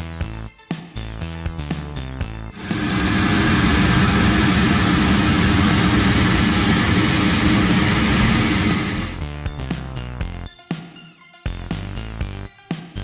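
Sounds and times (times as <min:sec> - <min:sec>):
aircraft turbine roar: 0:02.6 - 0:09.3.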